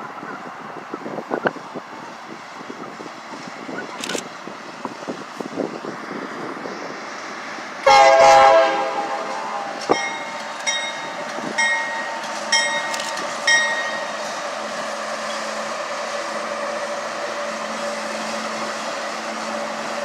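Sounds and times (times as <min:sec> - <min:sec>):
train rumbling: 0:00.0 - 0:20.0
locomotive horn blast: 0:07.8 - 0:10.0.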